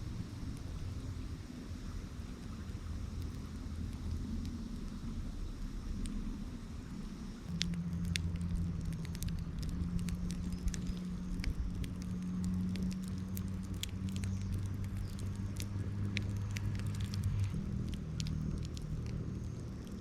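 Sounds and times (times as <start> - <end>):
low steady hum: 0.0 - 20.0
wood fire crackling and popping: 7.5 - 20.0.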